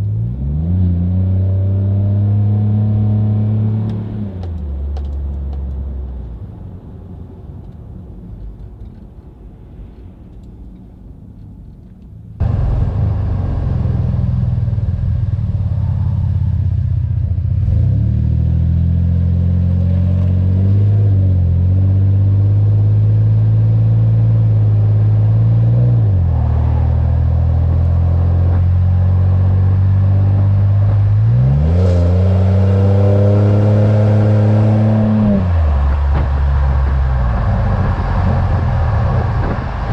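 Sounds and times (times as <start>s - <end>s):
truck engine exhaust revving: 12.4s - 19.3s, 20.5s - 39.9s.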